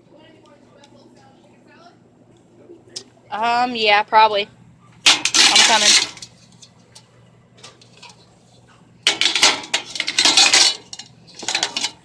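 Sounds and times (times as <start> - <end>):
household goods clinking and clattering: 5.0 - 6.7, 9.0 - 12.0.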